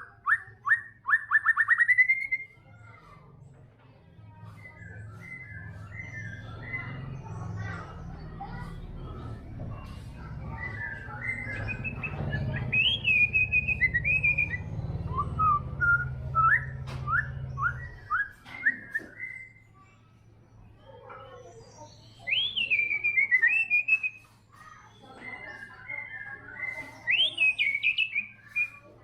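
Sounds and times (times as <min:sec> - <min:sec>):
bird singing whistled phrases: 0:00.0 - 0:02.6, 0:10.5 - 0:19.8, 0:21.6 - 0:29.0.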